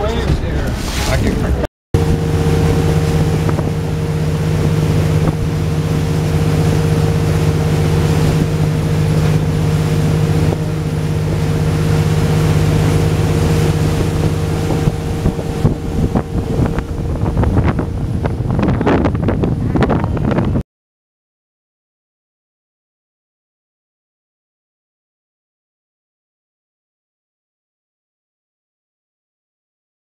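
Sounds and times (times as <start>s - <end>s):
boat engine droning: 0.0s - 20.6s
water noise: 0.0s - 20.6s
wind buffeting microphone: 0.0s - 20.6s.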